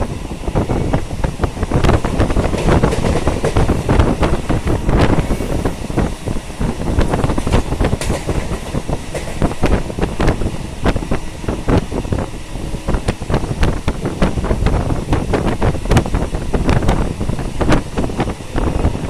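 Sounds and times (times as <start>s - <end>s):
train carriage rumbling: 0.0s - 19.0s
wheels clicking and rattling: 0.9s - 10.5s.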